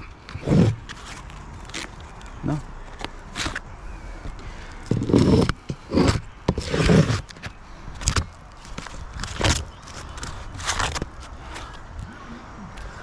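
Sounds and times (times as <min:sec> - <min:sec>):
scraping on roof shingles: 0:00.2 - 0:01.9, 0:04.9 - 0:11.7.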